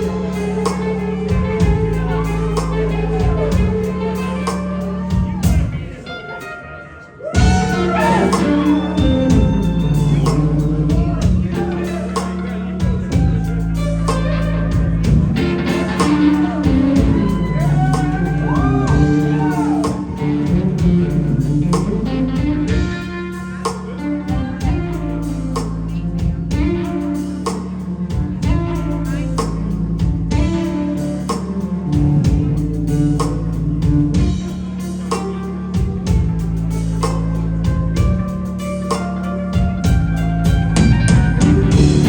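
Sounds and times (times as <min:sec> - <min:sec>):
blues-rock band playing: 0:00.0 - 0:42.0
electric guitar: 0:00.0 - 0:42.0.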